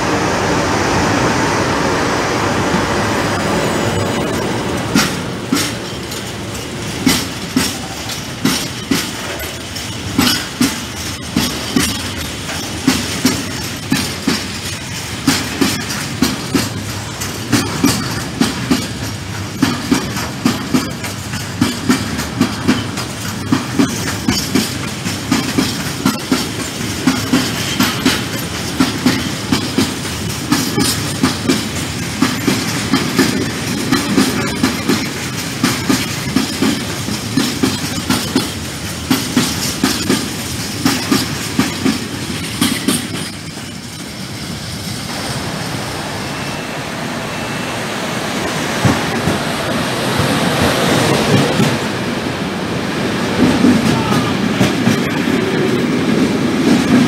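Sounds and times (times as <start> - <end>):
train rumble: 0.0 - 57.0
wheels clacking over rail joints: 2.8 - 45.2, 48.4 - 57.0.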